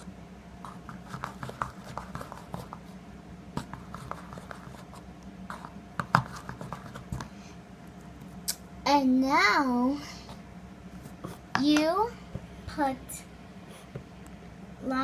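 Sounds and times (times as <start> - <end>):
spoon stirring in a container: 3.6 - 7.3.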